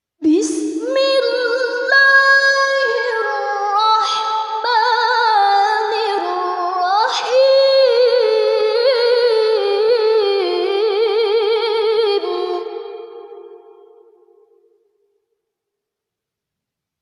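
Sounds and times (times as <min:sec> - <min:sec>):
woman chanting melodically: 0:00.2 - 0:13.8.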